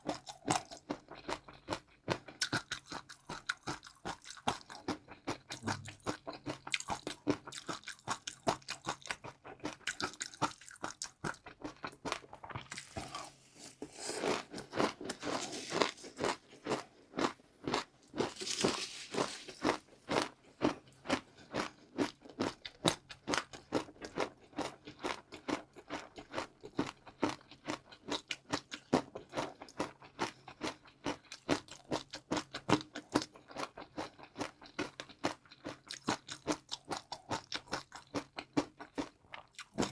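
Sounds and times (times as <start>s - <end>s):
chewing crunchy food: 0.0s - 39.9s.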